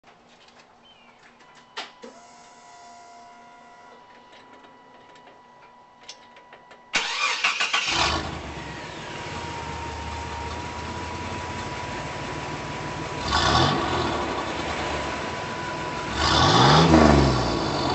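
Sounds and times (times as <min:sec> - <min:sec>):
engine cranking and starting: 0:06.9 - 0:11.7
engine idling: 0:07.0 - 0:17.9.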